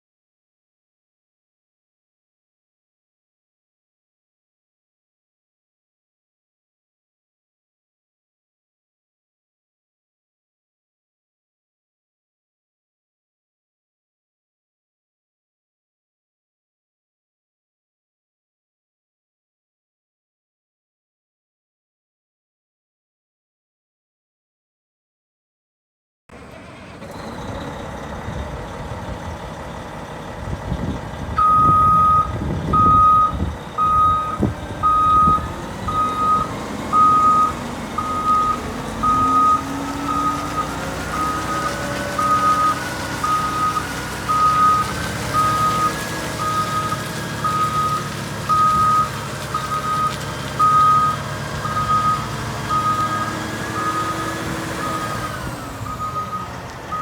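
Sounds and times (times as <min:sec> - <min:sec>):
diesel truck engine running: 0:26.3 - 0:57.0
reverse alarm beeping: 0:31.4 - 0:40.4, 0:42.3 - 0:45.8, 0:46.4 - 0:55.1, 0:55.8 - 0:57.0.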